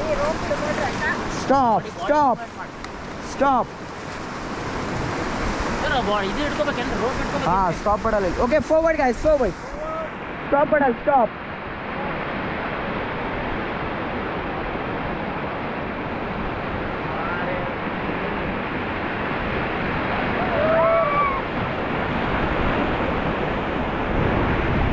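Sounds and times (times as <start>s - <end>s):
river water rushing: 0.0s - 24.9s
wind on microphone: 11.6s - 24.9s.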